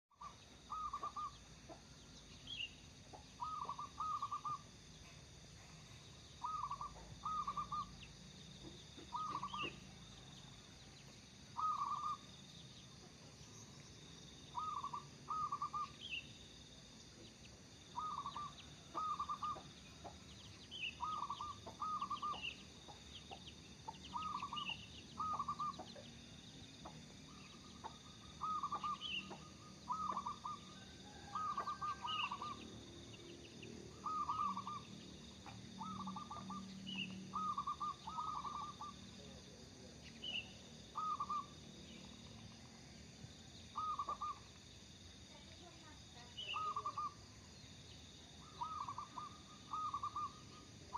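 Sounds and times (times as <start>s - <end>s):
small bird chirping: 0.1s - 50.9s
dove cooing: 0.2s - 1.4s, 3.4s - 5.8s, 6.4s - 7.9s, 8.6s - 10.0s, 11.6s - 12.2s, 14.6s - 16.0s, 18.0s - 19.7s, 21.0s - 26.0s, 27.3s - 32.7s, 33.9s - 39.4s, 40.9s - 41.5s, 43.8s - 44.5s, 46.5s - 47.2s, 48.4s - 50.4s.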